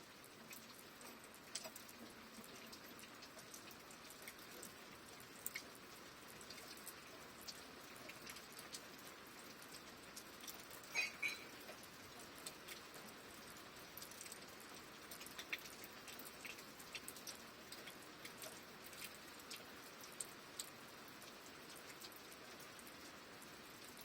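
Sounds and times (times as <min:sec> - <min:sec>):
light rain hissing: 0:00.0 - 0:24.0
raindrops ticking and dripping: 0:00.0 - 0:24.0.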